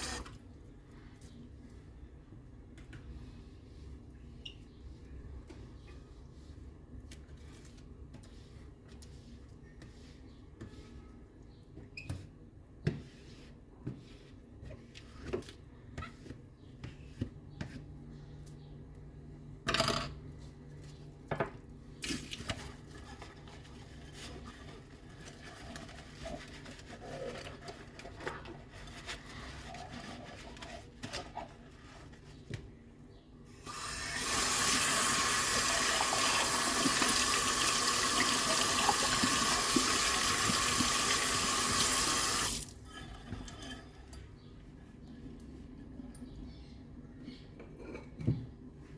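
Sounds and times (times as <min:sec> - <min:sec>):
tap water running into sink: 0:33.7 - 0:42.7
dishes clinking at a sink: 0:47.6 - 0:48.6.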